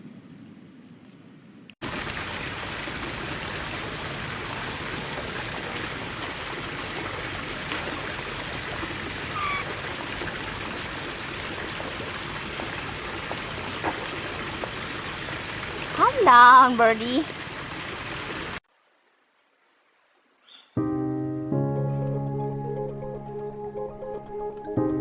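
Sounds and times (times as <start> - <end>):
running water: 1.8 - 20.4
parrot call: 9.3 - 9.8.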